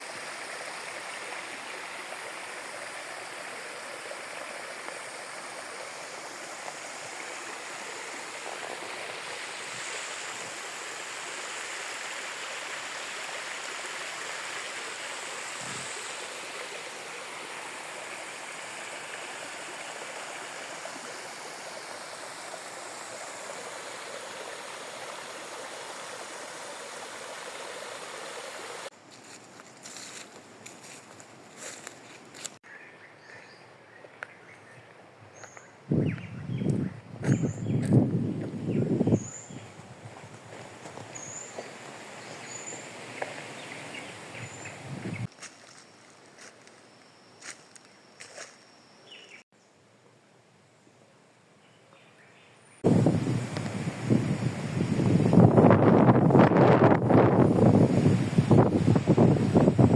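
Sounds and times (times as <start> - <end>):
stream water flowing: 0.0 - 32.6, 39.3 - 46.6, 52.8 - 59.9.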